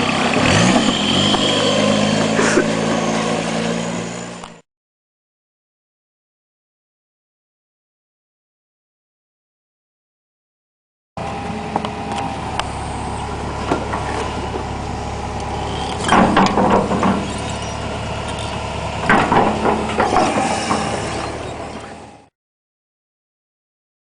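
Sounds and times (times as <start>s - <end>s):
diesel car engine running: 0.0s - 4.6s, 11.2s - 22.3s.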